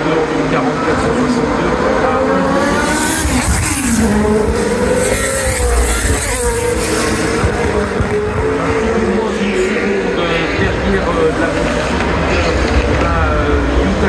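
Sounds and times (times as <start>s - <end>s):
racing engines at speed: 0.0s - 14.0s.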